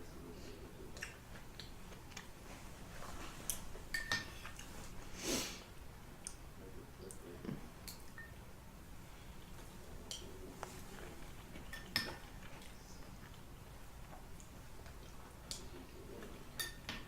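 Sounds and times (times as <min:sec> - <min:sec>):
mouth chewing clicks: 0:00.9 - 0:02.3, 0:07.0 - 0:08.3
spoon clinking against bowl: 0:03.9 - 0:04.3, 0:11.7 - 0:12.2, 0:16.6 - 0:17.0.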